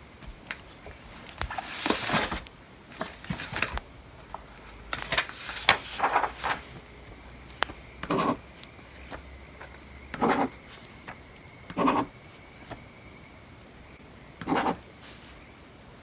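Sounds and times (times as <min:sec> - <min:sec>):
pen scratching on paper: 0:08.0 - 0:08.4, 0:10.1 - 0:10.6, 0:11.7 - 0:12.1, 0:14.4 - 0:14.8.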